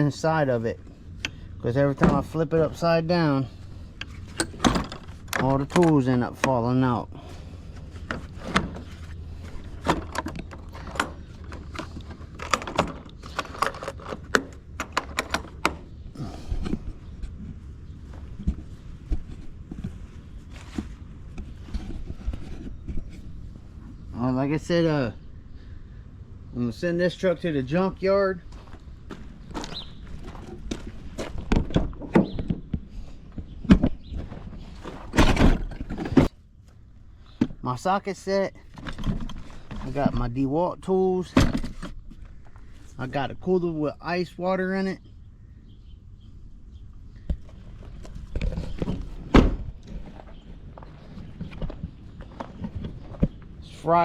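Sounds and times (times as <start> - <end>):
steady low hum: 0.0 - 54.0
hard thunks: 48.8 - 50.3.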